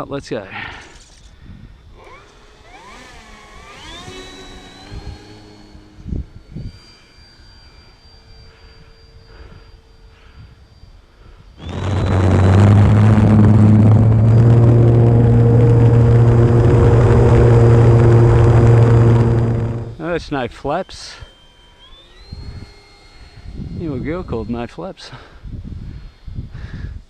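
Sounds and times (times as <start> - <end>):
electric motor whine: 0.0 - 27.0
propeller full-power drone: 0.0 - 27.0.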